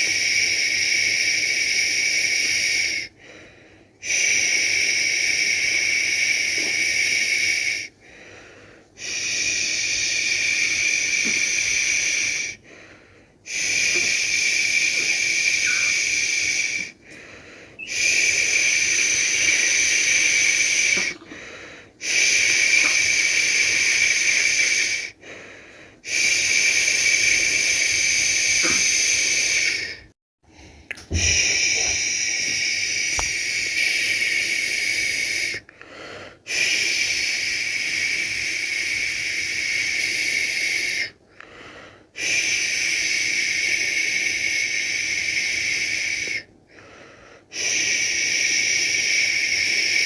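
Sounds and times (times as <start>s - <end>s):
person shushing a baby: 15.6s - 16.8s.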